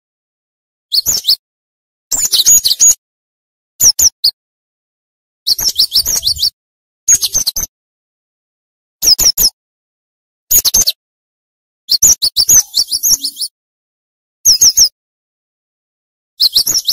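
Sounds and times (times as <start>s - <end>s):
bird singing rapid high notes: 5.5s - 7.7s, 11.9s - 13.5s, 16.4s - 16.9s.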